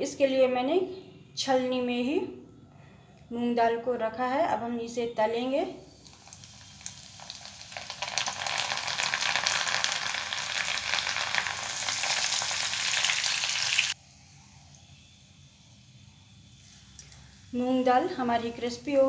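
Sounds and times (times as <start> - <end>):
lentils deep-frying in oil: 5.7 - 14.0.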